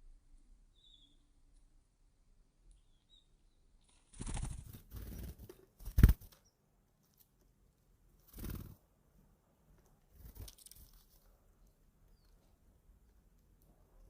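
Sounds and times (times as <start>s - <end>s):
small birds' wings fluttering: 3.8s - 6.5s, 8.2s - 8.9s, 10.0s - 12.6s.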